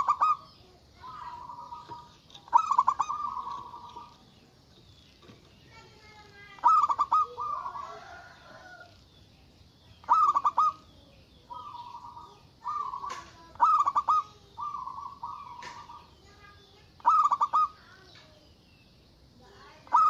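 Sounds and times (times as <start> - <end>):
dove soft drawn-out coos: 0.0 - 4.4, 6.6 - 9.1, 10.0 - 10.9, 11.5 - 16.1, 17.0 - 17.8
dove stuttering coos: 0.0 - 4.7, 6.0 - 9.1, 10.0 - 16.2, 17.0 - 17.8.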